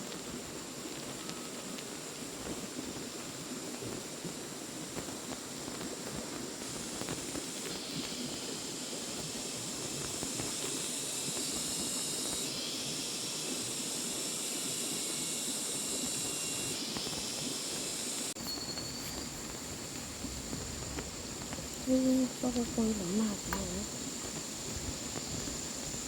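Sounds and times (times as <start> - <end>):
hissing outdoor noise: 0.0 - 26.0
high-pitched droning: 7.6 - 19.6.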